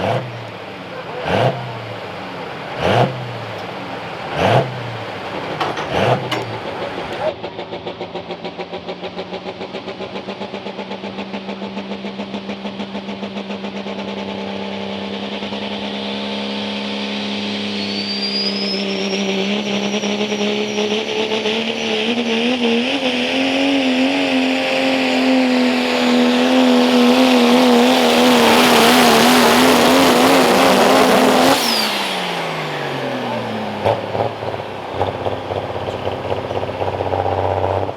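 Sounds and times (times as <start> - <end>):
diesel engine under full load: 0.0 - 37.9
turbo whistle: 16.8 - 22.8.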